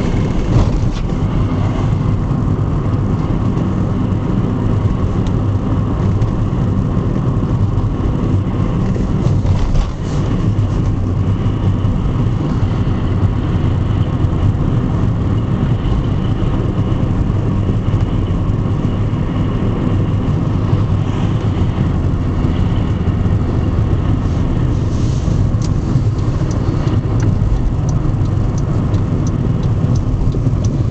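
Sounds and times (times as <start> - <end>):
car engine and tyre rumble: 0.0 - 30.9.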